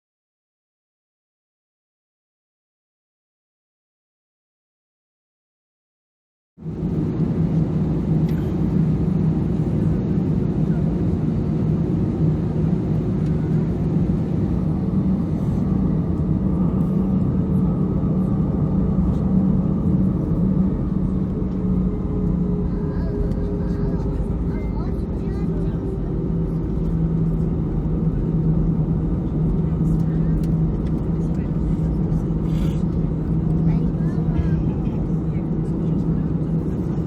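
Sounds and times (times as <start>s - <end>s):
jet engines humming in cabin: 6.6s - 37.0s.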